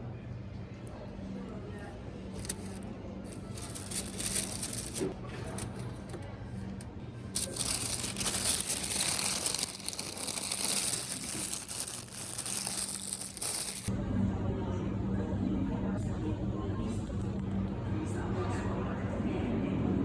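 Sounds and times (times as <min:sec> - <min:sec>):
packaging crinkling: 0:02.4 - 0:06.2, 0:07.4 - 0:13.9.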